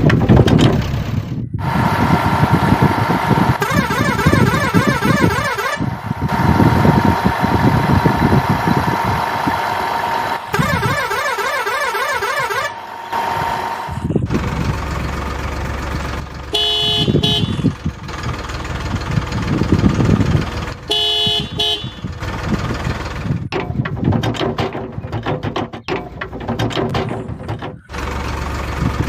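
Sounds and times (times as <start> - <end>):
toy engine rumbling: 0.0 - 29.0
warbling siren-like tone: 1.6 - 14.5
toy horn honks: 3.6 - 5.9, 10.5 - 13.5, 16.5 - 17.8, 20.9 - 22.1.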